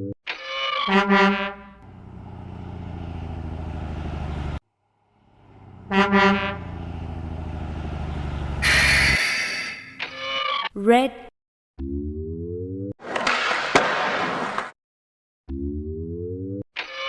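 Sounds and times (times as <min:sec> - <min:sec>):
truck engine running: 0:01.6 - 0:09.2
horn double honk: 0:05.6 - 0:07.0, 0:08.5 - 0:10.0
burst of hiss: 0:08.6 - 0:09.8.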